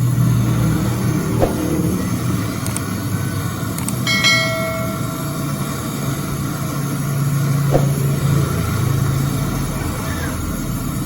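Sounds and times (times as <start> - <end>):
brief metallic ring: 4.1 - 5.6.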